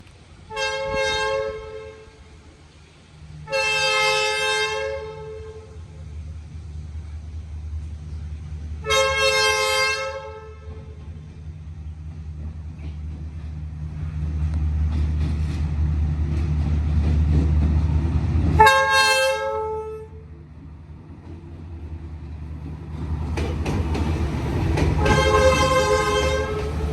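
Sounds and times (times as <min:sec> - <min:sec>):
diesel locomotive engine rumble: 0:00.0 - 0:26.9
locomotive two-note horn: 0:00.5 - 0:02.2, 0:03.5 - 0:05.8, 0:08.8 - 0:11.1, 0:18.6 - 0:20.2, 0:25.0 - 0:26.9.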